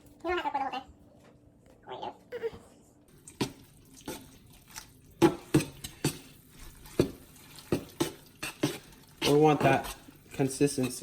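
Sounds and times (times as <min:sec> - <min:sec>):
wet stirring of noodles: 0:03.1 - 0:11.0.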